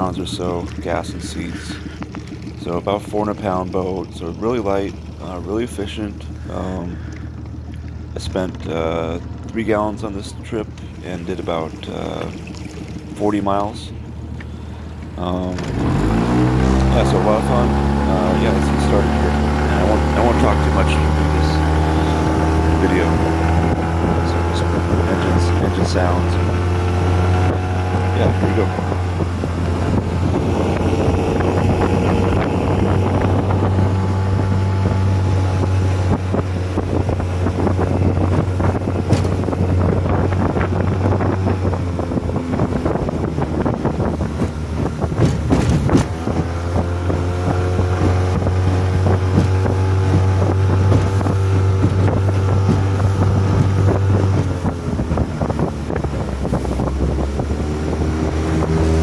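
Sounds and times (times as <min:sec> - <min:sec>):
outboard motor running: 0:00.0 - 0:59.0
wind buffeting microphone: 0:04.8 - 0:59.0.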